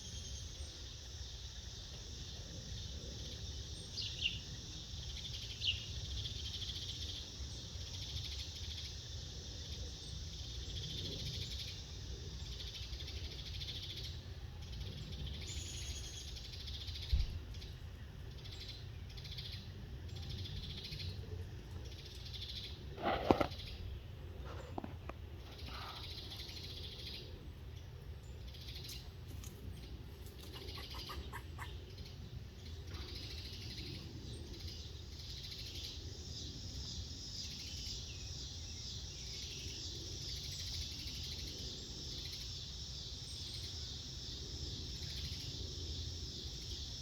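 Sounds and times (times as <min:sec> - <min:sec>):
insect hum: 0:00.0 - 0:47.0
bird chirps: 0:28.3 - 0:42.6.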